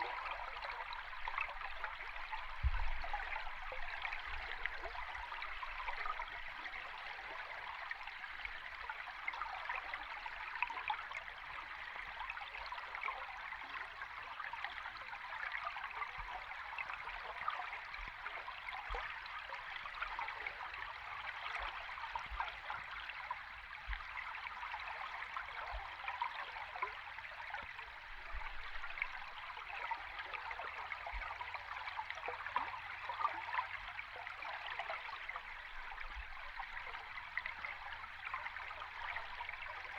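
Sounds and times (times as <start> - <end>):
underwater stream rushing and bubbling: 0.0 - 10.6, 26.7 - 39.9.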